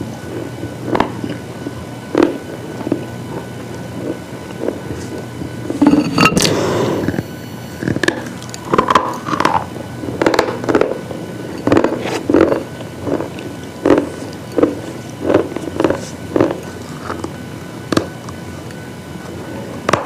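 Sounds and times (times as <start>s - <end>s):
low steady hum: 0.0s - 20.0s
brittle pieces crunching: 7.8s - 10.9s.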